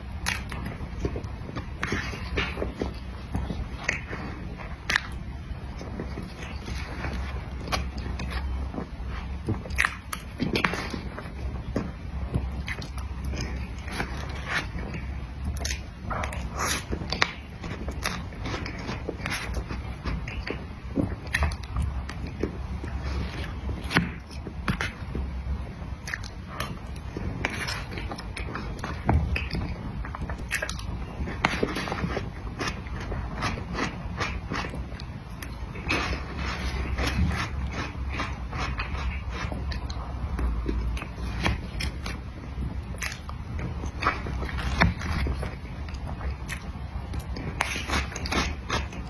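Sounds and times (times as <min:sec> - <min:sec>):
person chewing with mouth smacks: 0:00.0 - 0:49.0
mouth and lip clicks: 0:26.0 - 0:36.1.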